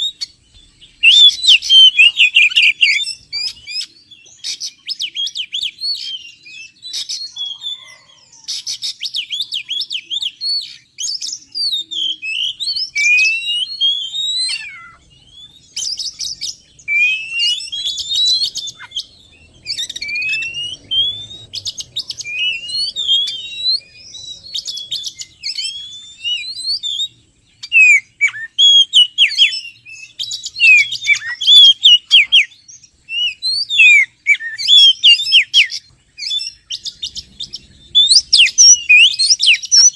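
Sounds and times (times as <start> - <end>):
sharp down-slurred bird notes: 0.0 - 8.0, 9.2 - 39.9
bird singing varied song: 0.0 - 39.9.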